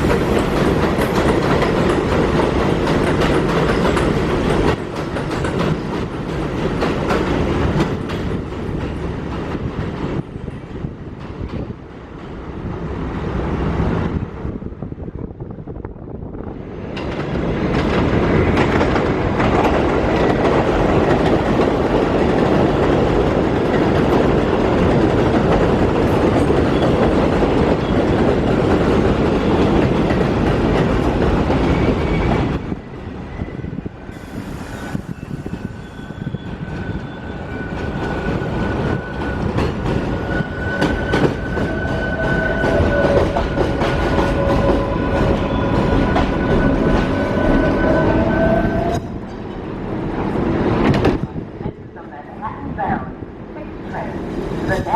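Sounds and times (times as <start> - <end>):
train wheels rumbling on steel: 0.0 - 14.4, 16.2 - 51.6.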